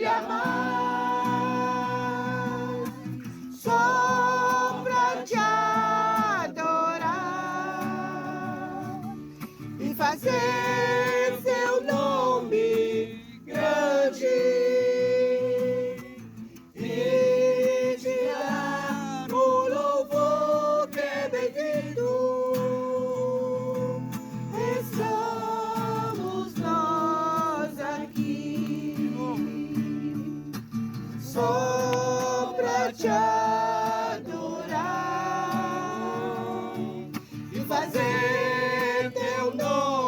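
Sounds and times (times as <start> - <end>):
person singing with vibrato: 0.0 - 9.2, 31.2 - 40.0.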